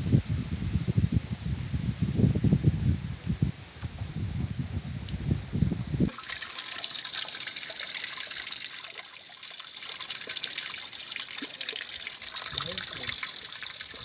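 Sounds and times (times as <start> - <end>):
wind rumbling on microphone: 0.0 - 6.1.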